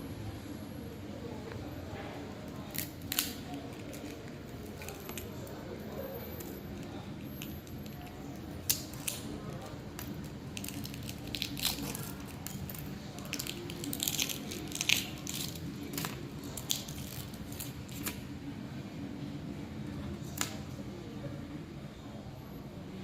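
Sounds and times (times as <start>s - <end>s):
egg shells cracking and peeling: 2.6s - 5.4s, 6.3s - 18.2s.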